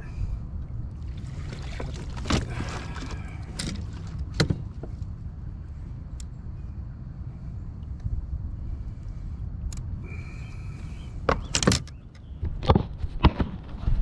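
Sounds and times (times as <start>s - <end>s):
water splashing: 1.0s - 5.0s.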